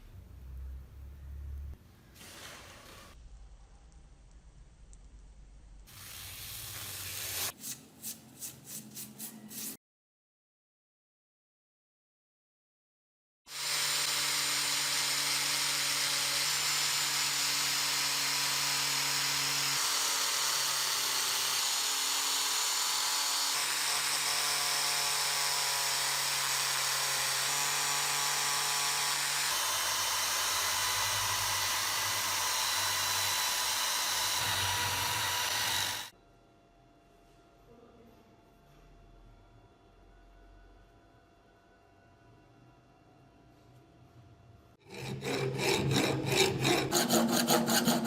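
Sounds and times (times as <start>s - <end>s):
electric power tool running: 13.5s - 36.1s.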